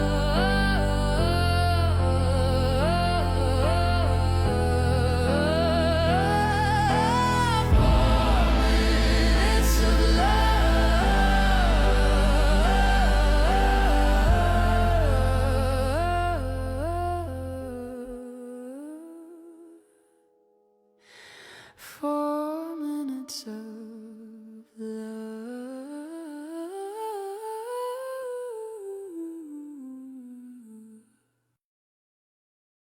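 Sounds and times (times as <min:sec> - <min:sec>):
wordless humming melody: 0:00.0 - 0:17.5.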